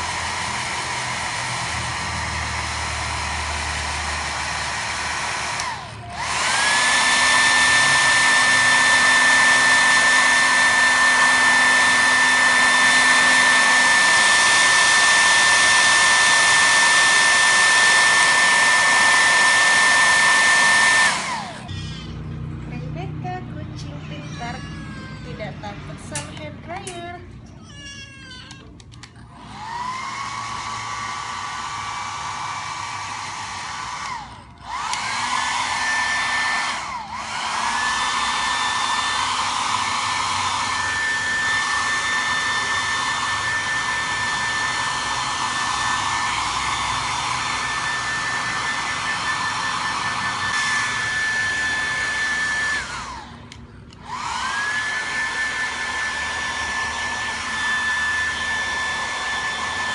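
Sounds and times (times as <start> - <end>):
hair dryer blowing: 0.0 - 27.2, 29.1 - 59.9.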